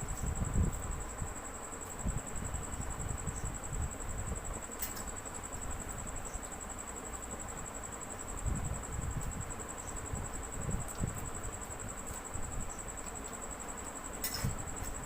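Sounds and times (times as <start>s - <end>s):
wind rumble on microphone: 0.0s - 4.6s, 8.3s - 12.9s
high-pitched insect trill: 0.0s - 15.0s.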